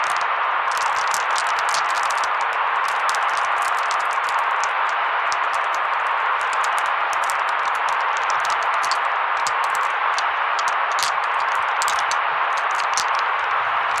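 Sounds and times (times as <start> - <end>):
crackling ticks: 0.0 - 14.0
white noise hiss: 0.0 - 14.0.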